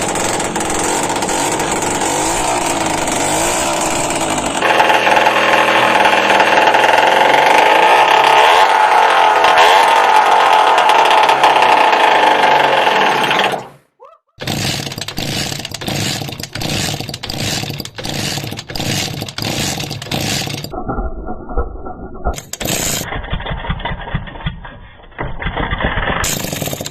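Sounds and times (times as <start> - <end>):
rough rhythmic running sound: 0.0 - 13.6, 14.3 - 20.8, 22.4 - 26.9
engine whining: 0.0 - 20.8.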